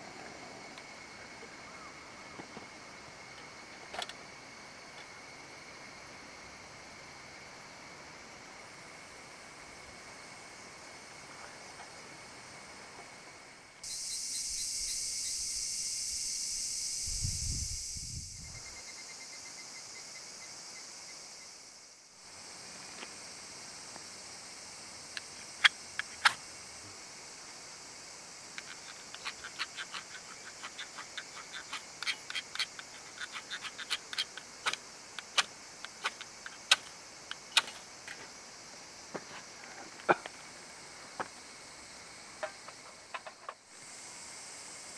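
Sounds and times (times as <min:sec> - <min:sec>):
steady fire hiss: 0:00.0 - 0:44.9
campfire wood crackling and popping: 0:28.6 - 0:37.7.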